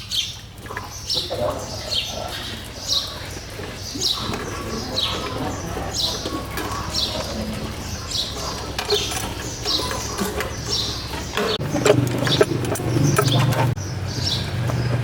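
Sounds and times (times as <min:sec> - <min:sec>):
bird calling: 0:00.0 - 0:15.0.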